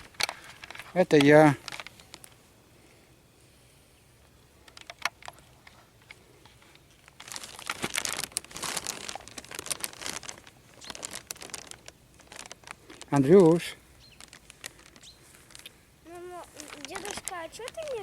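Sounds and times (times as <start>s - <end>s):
dry leaves crunching underfoot: 6.9s - 18.0s.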